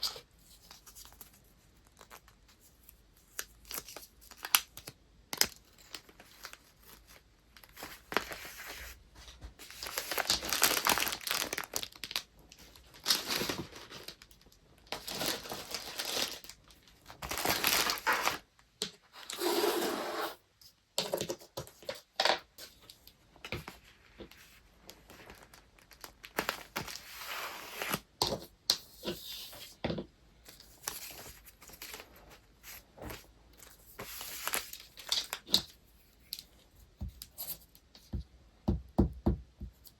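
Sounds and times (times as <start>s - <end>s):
paper rustling and tearing: 15.0s - 16.5s, 17.2s - 18.4s, 30.6s - 35.6s.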